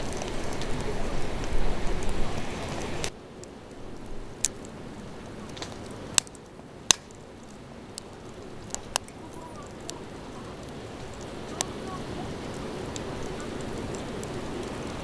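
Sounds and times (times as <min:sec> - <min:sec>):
campfire crackling: 0:00.0 - 0:15.0
firewood popping: 0:00.0 - 0:15.0.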